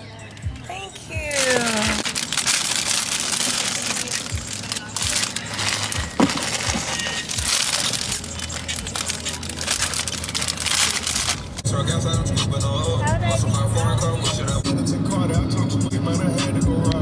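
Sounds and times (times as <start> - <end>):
plastic wrapping crinkling: 0.3 - 11.6.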